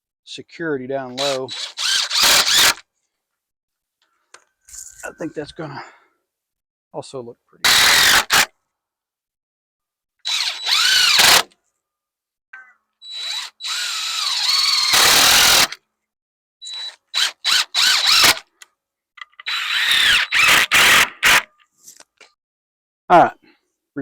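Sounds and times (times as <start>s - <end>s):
power drill running in bursts: 1.2s - 2.8s, 7.7s - 8.4s, 10.3s - 11.5s, 13.0s - 15.8s, 16.6s - 18.5s, 19.4s - 21.4s.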